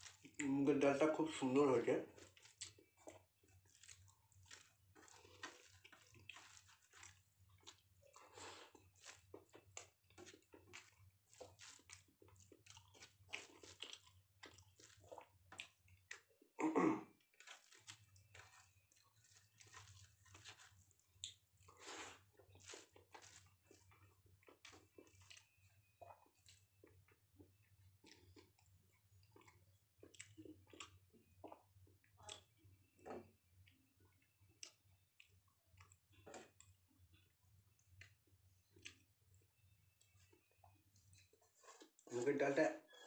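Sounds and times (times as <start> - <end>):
person chewing food: 0.0 - 0.8, 1.5 - 42.3.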